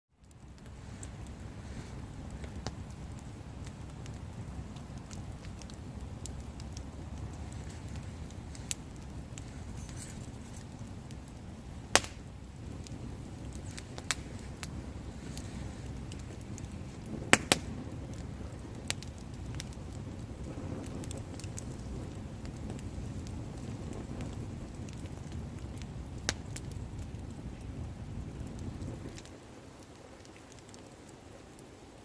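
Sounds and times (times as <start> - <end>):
burning wood crackling and popping: 0.1 - 32.0
campfire flames rushing: 0.2 - 32.0
loud wood snaps: 11.9 - 12.2, 17.3 - 17.8.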